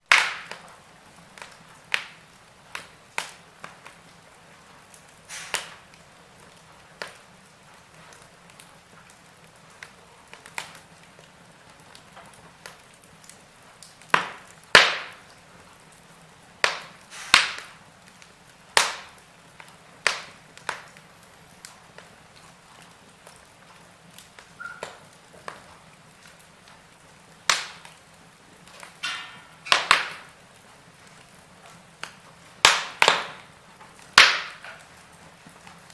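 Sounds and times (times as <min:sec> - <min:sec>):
wood fire crackling and popping: 0:00.0 - 0:35.9.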